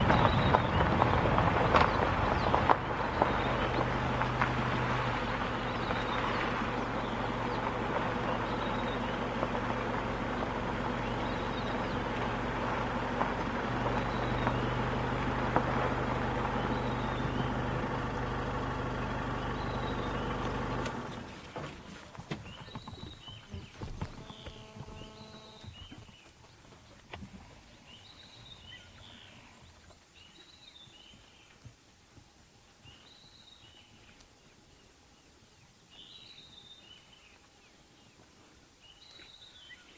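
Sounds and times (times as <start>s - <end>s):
vehicle engine running: 0.0s - 25.6s.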